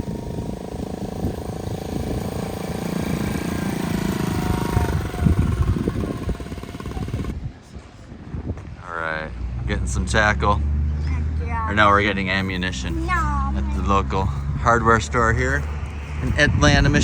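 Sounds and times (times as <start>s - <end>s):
vehicle engine running: 0.0s - 7.5s, 11.6s - 17.0s.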